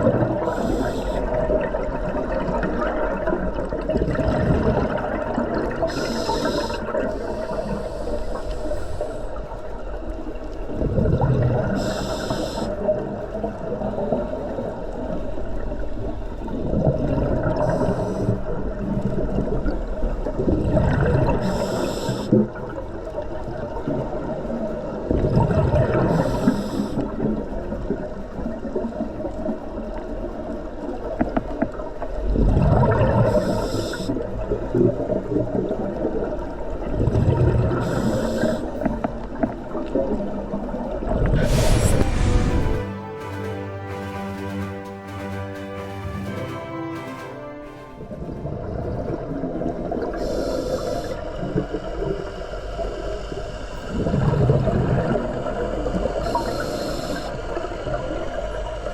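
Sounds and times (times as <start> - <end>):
gurgle of exhaled bubbles: 0.0 - 7.6, 10.7 - 12.0, 18.7 - 21.7, 23.5 - 26.3, 32.2 - 42.8, 53.9 - 56.5
regulator hiss on inhale: 0.4 - 1.6, 5.8 - 9.6, 11.6 - 13.0, 17.6 - 18.6, 21.4 - 22.6, 26.0 - 27.2, 33.2 - 34.2, 37.7 - 39.0, 41.4 - 42.8, 50.1 - 54.2, 56.0 - 58.8.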